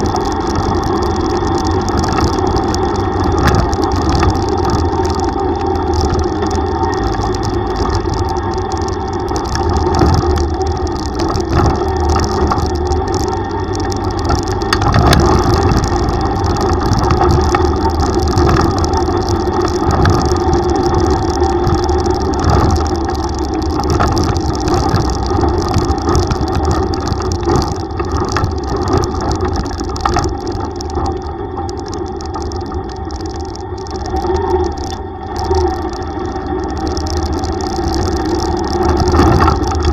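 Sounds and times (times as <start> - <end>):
tricycle engine running: 0.0 - 39.9.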